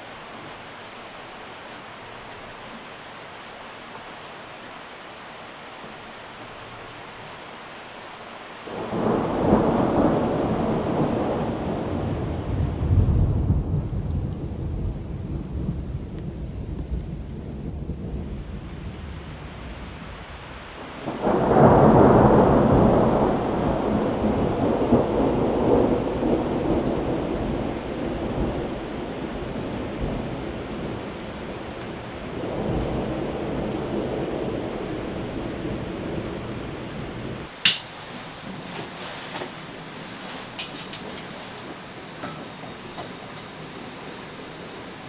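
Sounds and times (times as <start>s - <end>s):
heavy rain: 0.0s - 45.0s
rolling thunder: 8.7s - 37.5s.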